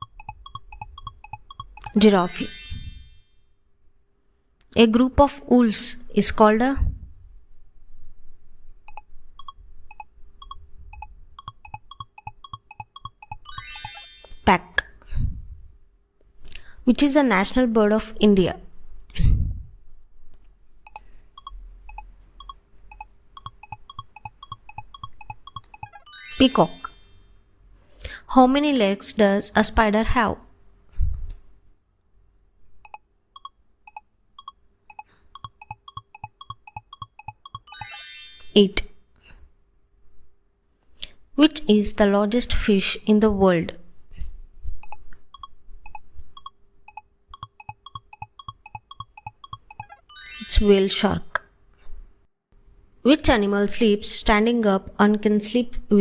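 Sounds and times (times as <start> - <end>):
countdown timer ticks: 0.0 - 3.1, 8.9 - 14.6, 20.9 - 27.2, 32.8 - 38.8, 44.8 - 51.4.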